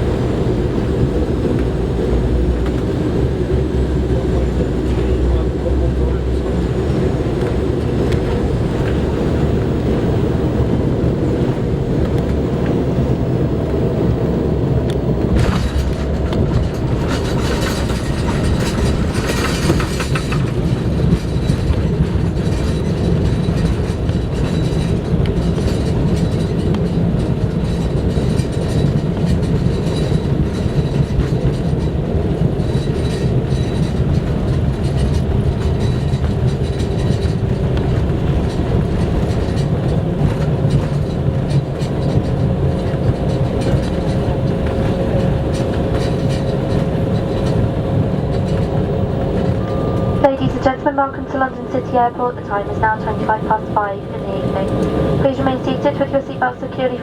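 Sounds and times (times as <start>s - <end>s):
airliner cabin engine rumble: 0.0s - 57.0s
rushing and rattling while braking: 0.0s - 57.0s.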